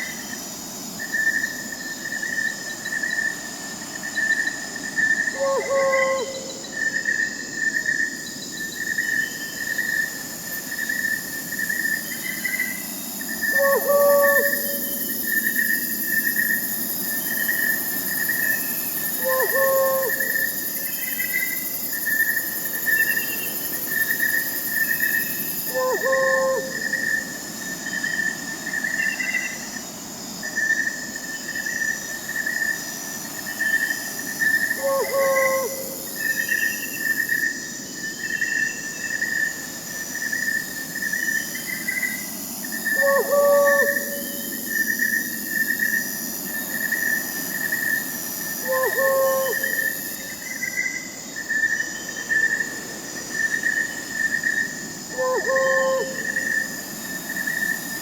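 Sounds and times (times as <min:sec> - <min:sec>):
crickets chirping: 0:00.0 - 0:58.0
high insect hiss: 0:00.0 - 0:58.0
owl hooting: 0:05.3 - 0:06.6, 0:13.5 - 0:15.2, 0:19.2 - 0:20.5, 0:25.7 - 0:27.2, 0:34.7 - 0:36.3, 0:42.9 - 0:44.8, 0:48.6 - 0:50.0, 0:55.1 - 0:56.5.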